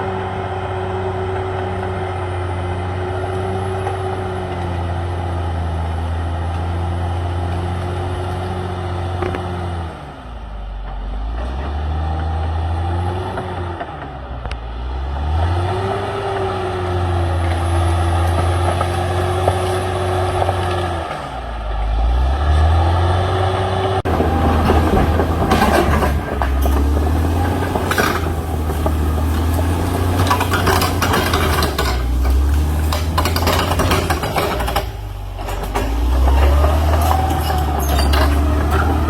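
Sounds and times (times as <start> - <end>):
bulldozer diesel engine running: 0.0 - 39.0
clatter of cracks and knocks: 24.1 - 39.0.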